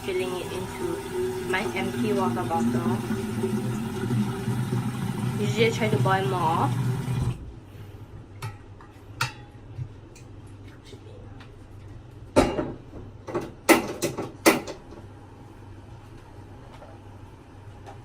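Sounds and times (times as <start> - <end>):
pots and dishes clattering: 9.2 - 9.6, 12.4 - 14.8.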